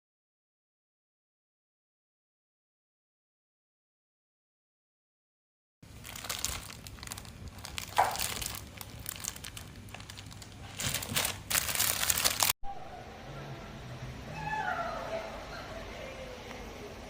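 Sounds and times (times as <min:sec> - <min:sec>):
plastic packaging crinkling: 0:05.8 - 0:12.6.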